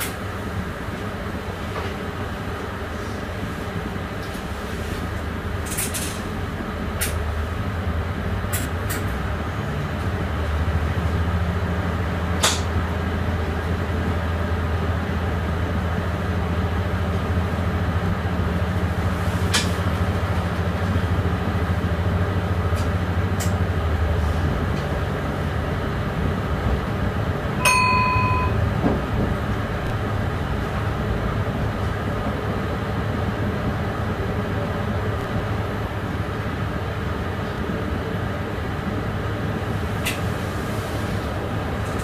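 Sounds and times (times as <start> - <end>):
train motor and wheels droning: 0.0 - 42.0
short electronic beep: 27.6 - 28.7.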